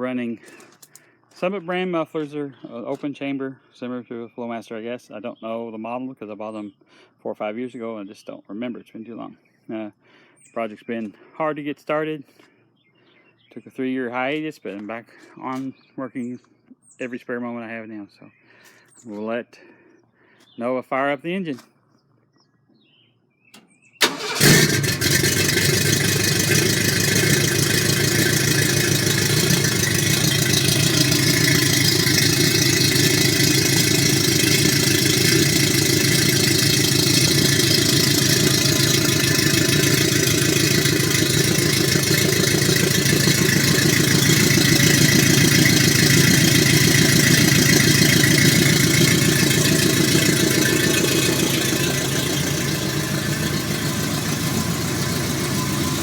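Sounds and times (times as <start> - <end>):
truck engine starting and idling: 24.0 - 56.0.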